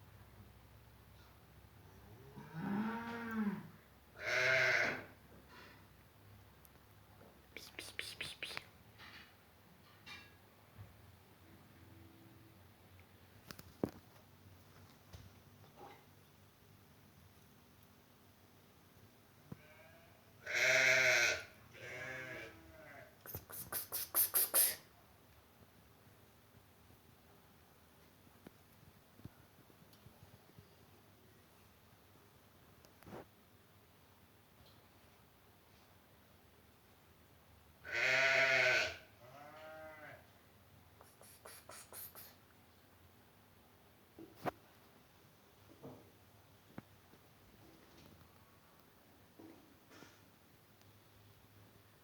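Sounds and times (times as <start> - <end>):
short harsh cat sounds: 23.3 - 24.8, 41.0 - 42.4.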